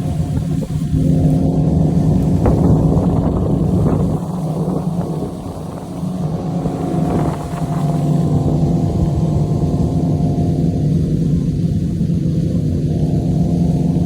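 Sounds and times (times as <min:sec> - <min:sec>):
outboard motor humming: 0:00.0 - 0:14.0
rushing water: 0:00.0 - 0:14.0
wind buffeting microphone: 0:00.0 - 0:14.0.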